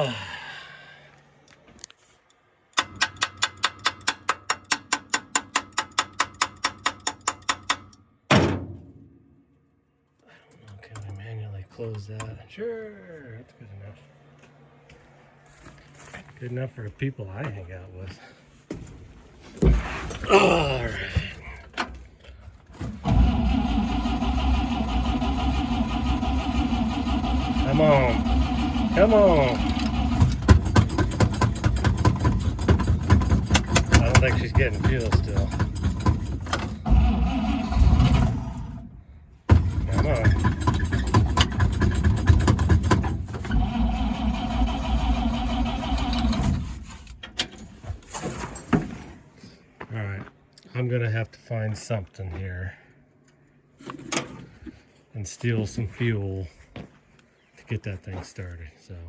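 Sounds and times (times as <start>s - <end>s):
engine cranking by starter: 20.3s - 49.1s.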